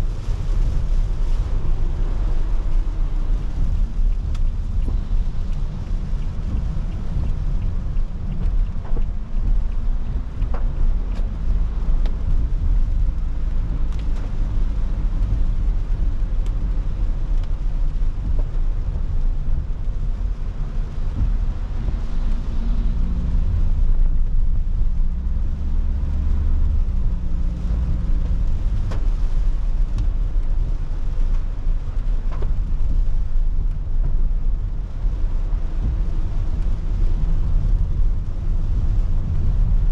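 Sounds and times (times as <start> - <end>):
car cabin road and engine rumble: 0.0 - 39.9
faint ticks: 3.5 - 12.2.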